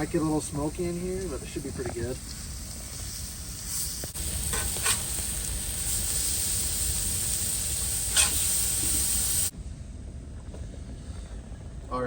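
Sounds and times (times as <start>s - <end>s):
steak sizzling on griddle: 0.0s - 9.5s.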